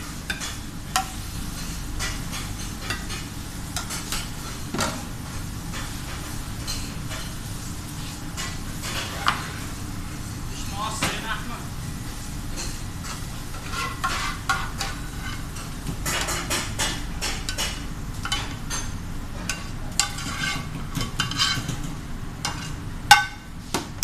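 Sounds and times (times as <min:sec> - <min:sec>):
frying sizzle: 0:00.0 - 0:24.0
utensil scraping food in pan: 0:12.5 - 0:23.7.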